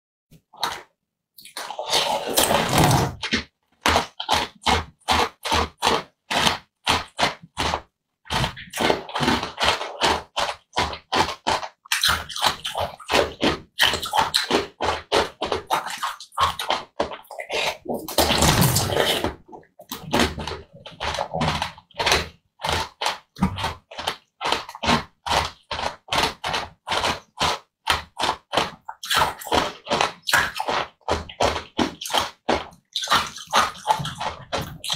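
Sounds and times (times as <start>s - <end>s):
loud slurps: 0.6s - 15.1s, 15.7s - 27.5s
wet squishing chewing clicks: 0.6s - 34.9s.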